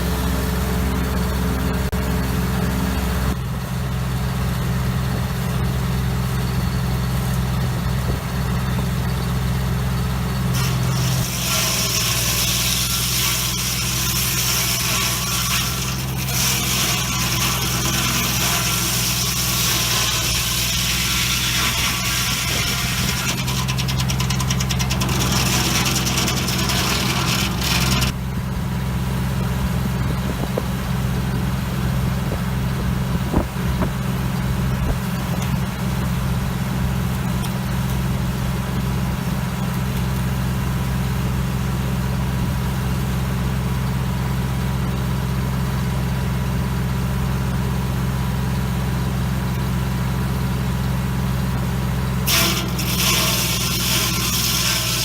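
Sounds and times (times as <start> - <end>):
sawmill engine running: 0.0 - 55.0
saw blade cutting wood: 10.5 - 28.2, 52.2 - 55.0.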